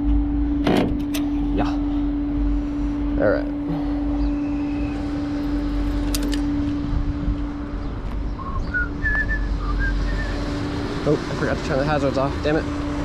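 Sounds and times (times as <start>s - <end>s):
truck engine rumbling: 0.0s - 13.0s
small birds chirping: 7.7s - 10.5s.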